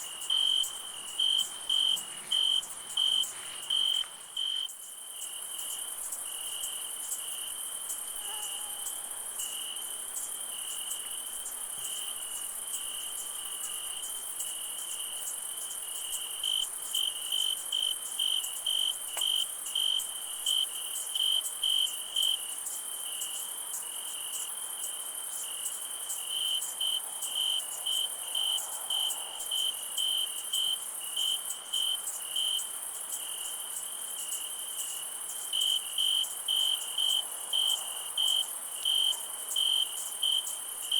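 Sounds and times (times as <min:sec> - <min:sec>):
crickets trilling: 0:00.0 - 0:40.9
loud cricket chirping: 0:00.0 - 0:40.9.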